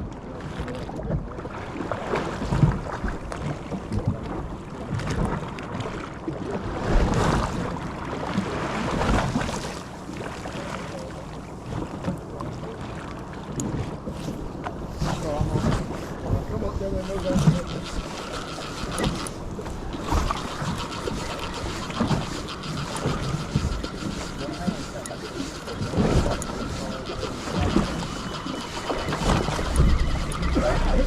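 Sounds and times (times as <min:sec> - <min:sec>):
fishing boat engine: 0:00.0 - 0:31.0
water around boat: 0:00.0 - 0:31.0
wind gusting across microphone: 0:13.9 - 0:31.0.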